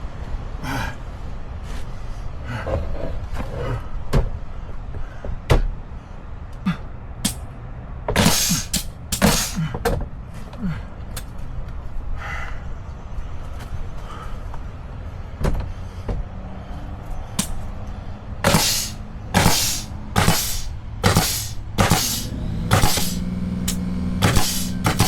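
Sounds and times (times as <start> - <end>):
loud bangs: 18.4 - 25.0.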